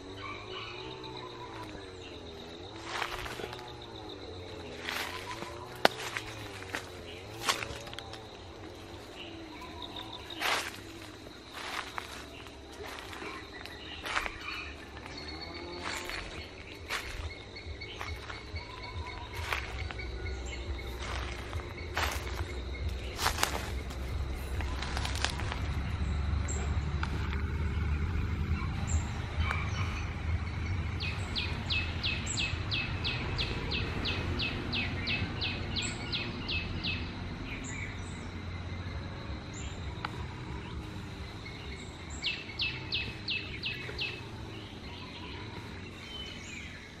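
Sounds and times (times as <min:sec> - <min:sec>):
low rumble: 0:01.7 - 0:34.4.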